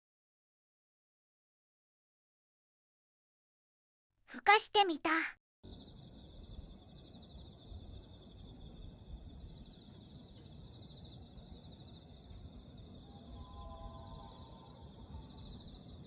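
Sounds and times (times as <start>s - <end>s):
faint low background noise: 4.4s - 16.0s
insects chirping in trills: 5.6s - 16.0s.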